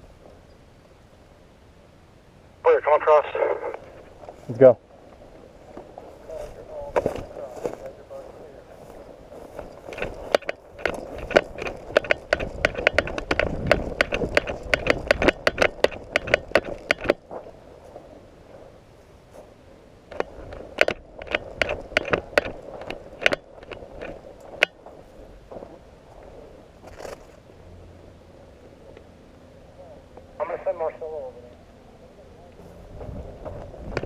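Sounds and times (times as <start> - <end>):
quick crackling footsteps: 3.7 - 27.5.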